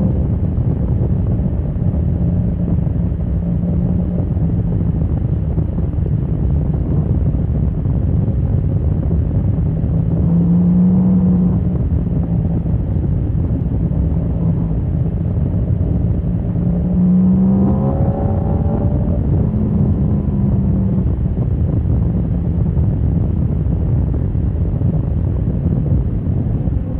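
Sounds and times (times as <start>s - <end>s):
wind noise on microphone: 0.0s - 26.9s
motorcycle engine accelerating: 8.5s - 26.9s.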